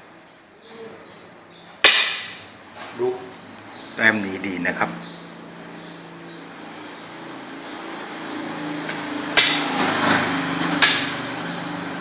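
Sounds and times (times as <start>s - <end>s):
sharp knocks: 1.8s - 2.5s
mechanical drone: 3.9s - 12.0s.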